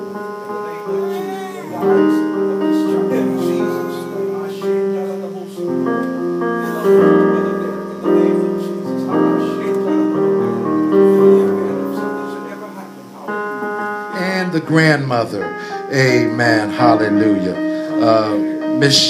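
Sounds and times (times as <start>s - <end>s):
piano playing slow chords: 0.0s - 19.0s.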